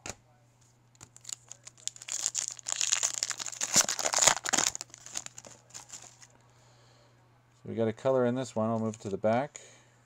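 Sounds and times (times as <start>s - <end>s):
foil wrapper crinkling and tearing: 1.1s - 6.3s.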